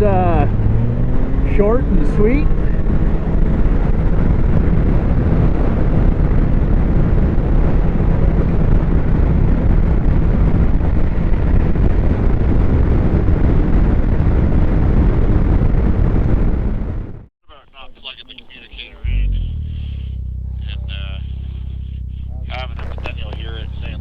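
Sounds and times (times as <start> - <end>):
snowmobile engine running: 0.0 - 15.4, 18.0 - 24.0
wind buffeting microphone: 0.0 - 17.2.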